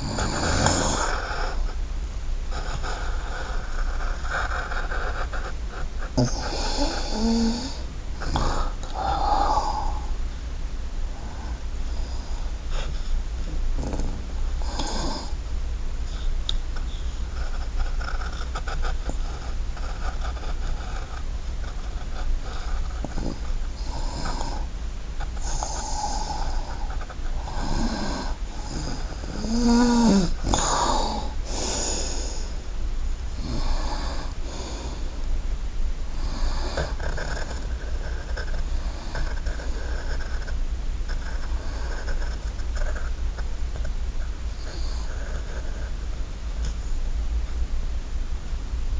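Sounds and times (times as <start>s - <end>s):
pencil scratching on paper: 2.6s - 6.2s.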